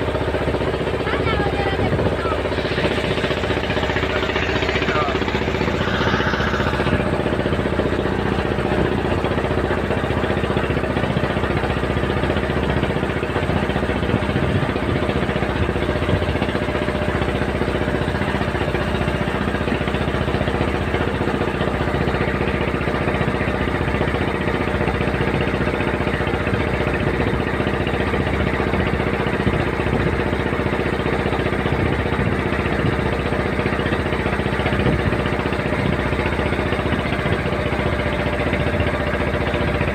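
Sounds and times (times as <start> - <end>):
water rushing: 0.0 - 18.6
boat engine running: 0.0 - 39.9.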